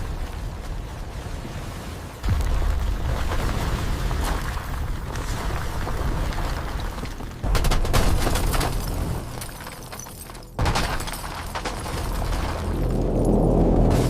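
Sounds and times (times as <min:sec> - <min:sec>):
loud booms with crackling rumble: 0:02.2 - 0:06.5.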